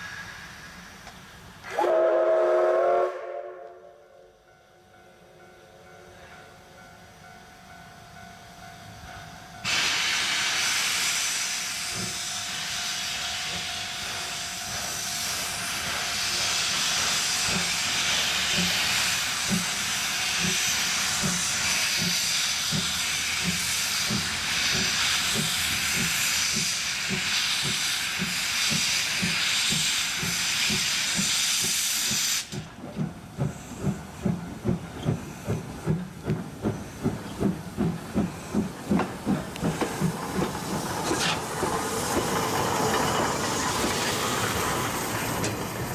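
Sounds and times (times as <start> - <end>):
steam locomotive exhaust chuffs: 0.0 - 4.2, 6.0 - 45.9
steam hiss from drain cocks: 9.7 - 32.7.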